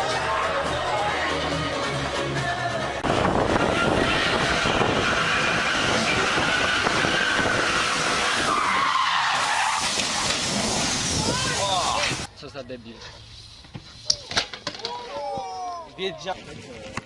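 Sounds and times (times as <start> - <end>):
road and engine noise: 0.0 - 14.7
tyres squealing: 3.6 - 12.3.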